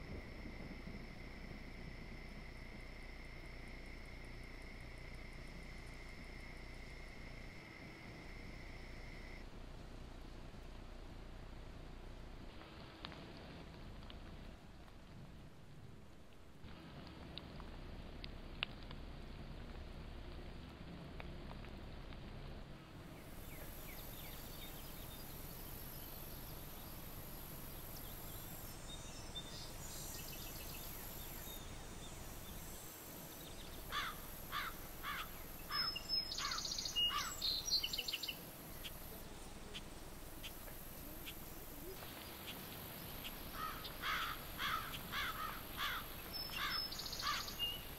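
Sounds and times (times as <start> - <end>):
microphone hiss: 0.0 - 47.9
birds calling descending notes: 43.5 - 47.9.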